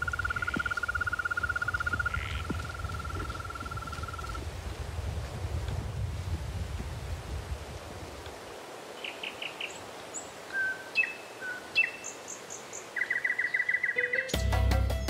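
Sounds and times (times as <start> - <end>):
birds chirping and singing: 0.0 - 4.4, 9.0 - 14.4
bird trill: 9.0 - 14.4
music with low bass: 14.4 - 15.0.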